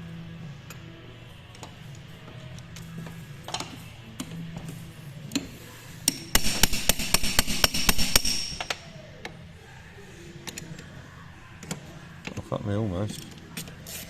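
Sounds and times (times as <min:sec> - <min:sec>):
hammer striking metal: 0:06.1 - 0:08.8.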